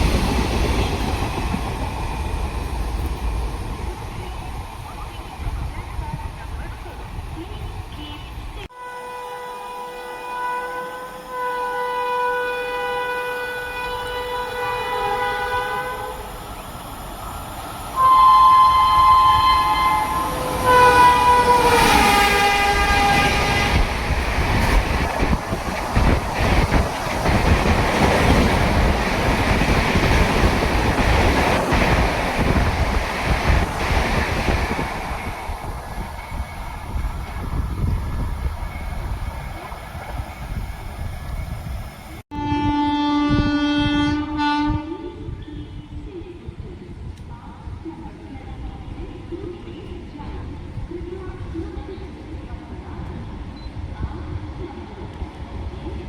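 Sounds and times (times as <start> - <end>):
train horn blasts: 8.0 - 16.3, 18.0 - 24.0, 42.3 - 46.0.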